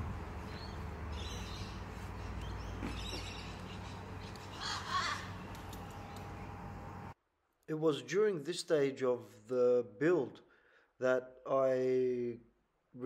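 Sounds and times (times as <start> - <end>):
low background hum: 0.0 - 7.2
bird cawing: 0.5 - 6.2.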